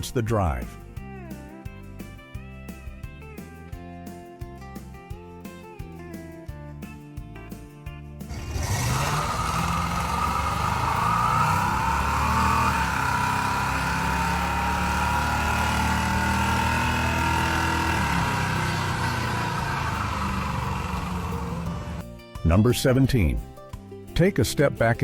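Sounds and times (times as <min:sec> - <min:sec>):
car engine running: 0:08.3 - 0:22.0.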